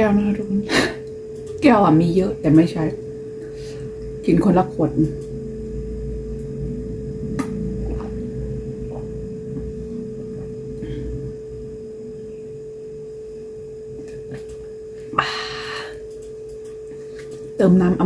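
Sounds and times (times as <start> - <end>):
high-pitched electrical hum: 0.0 - 18.0.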